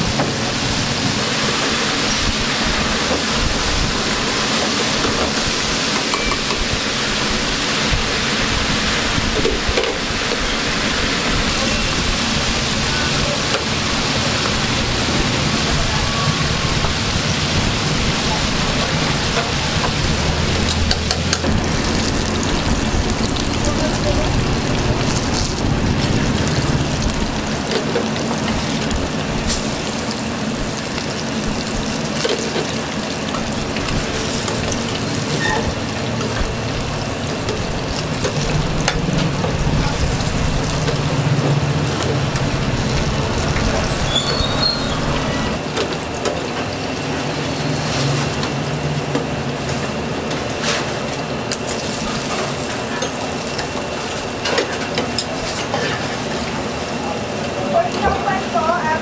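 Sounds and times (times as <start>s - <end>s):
rice sizzling in a wok: 0.1s - 59.0s.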